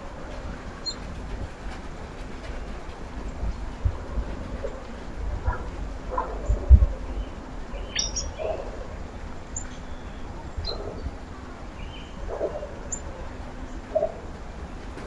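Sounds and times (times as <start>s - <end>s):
low outdoor rumble: 0.0s - 15.0s
small birds chirping: 5.5s - 15.0s.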